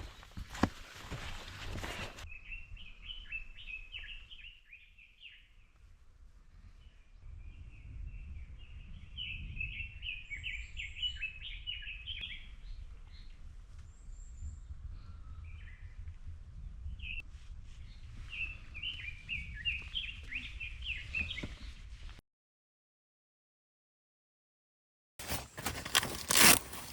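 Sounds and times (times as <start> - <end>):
rustling noise: 0.0 - 2.2, 17.2 - 18.4, 25.2 - 26.9.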